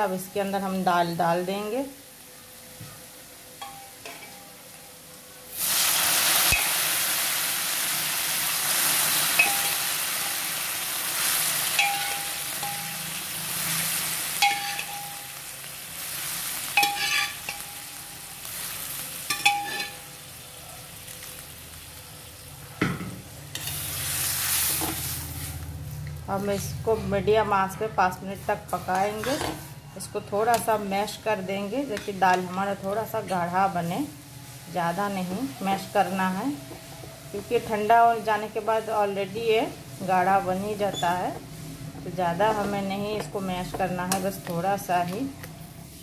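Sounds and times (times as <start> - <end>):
lentils sizzling in hot oil: 0.0 - 22.7, 23.3 - 26.7, 28.4 - 46.0
metal ladle clinking against pan: 19.3 - 20.0.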